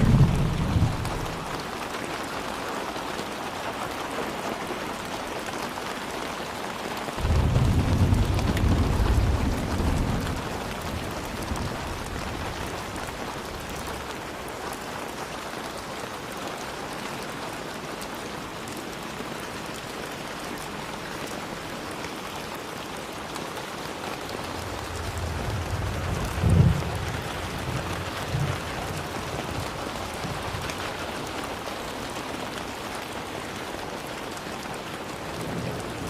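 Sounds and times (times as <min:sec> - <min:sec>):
low rumble of thunder: 0:00.0 - 0:01.6, 0:07.2 - 0:14.1, 0:24.4 - 0:31.2
steady rain hissing: 0:00.0 - 0:36.0.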